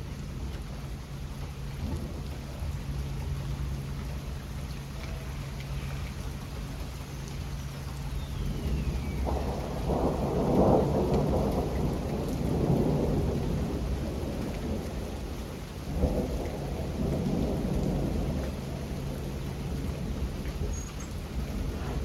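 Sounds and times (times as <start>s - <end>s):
steady rain: 0.0s - 22.0s
thunder rolling: 8.3s - 22.0s.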